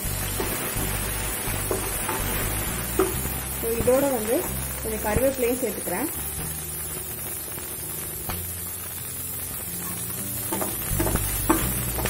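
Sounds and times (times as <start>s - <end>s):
food sizzling in oil: 0.0s - 12.0s
spatula scraping and knocking pan: 0.3s - 3.3s, 9.8s - 12.0s.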